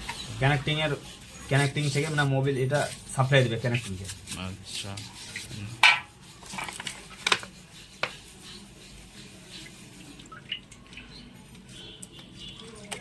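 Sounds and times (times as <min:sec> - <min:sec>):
liquid splashing and dripping: 0:09.1 - 0:13.0.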